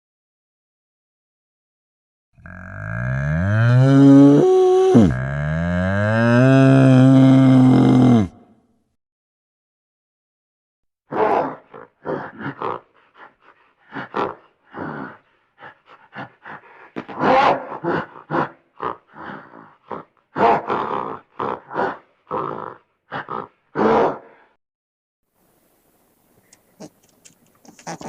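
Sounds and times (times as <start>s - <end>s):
farm animal grunting: 2.4s - 8.4s, 11.2s - 24.4s, 26.8s - 28.0s.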